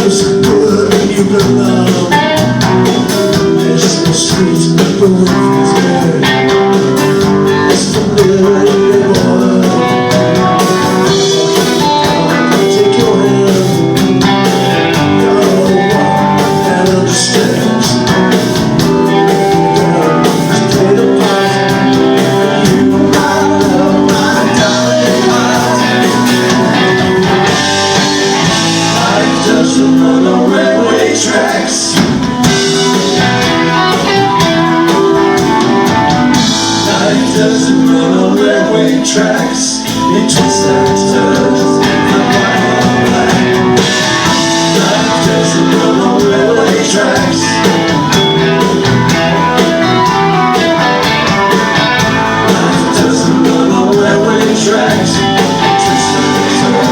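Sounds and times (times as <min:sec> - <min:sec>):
live rock band playing: 0:00.0 - 0:56.9
person singing: 0:00.0 - 0:56.9.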